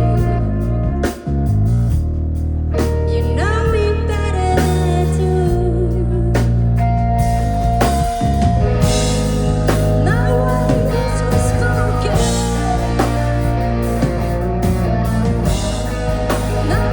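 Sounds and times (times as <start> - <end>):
bass guitar: 0.0 - 16.9
drums: 0.0 - 16.9
electric guitar: 0.0 - 16.9
person singing: 8.8 - 16.9.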